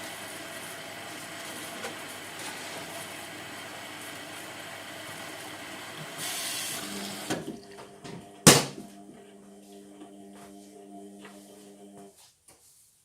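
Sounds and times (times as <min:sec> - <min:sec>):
water rushing into washing machine: 0:00.0 - 0:08.9.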